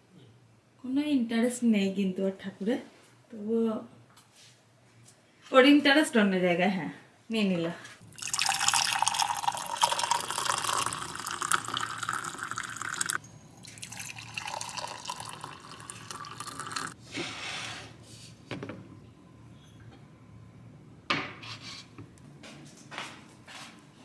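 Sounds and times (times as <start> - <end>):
water running from tap: 8.1 - 17.0.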